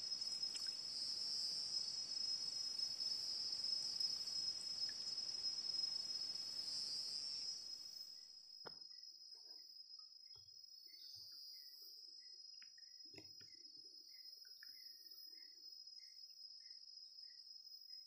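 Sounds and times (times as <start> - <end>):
soft hiss: 0.0 - 8.0
insects chirring: 0.0 - 18.0.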